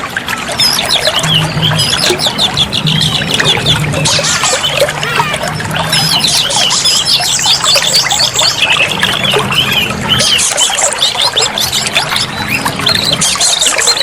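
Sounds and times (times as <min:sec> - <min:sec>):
steady background noise: 0:00.0 - 0:14.0
bird singing chirps and whistles: 0:00.5 - 0:14.0.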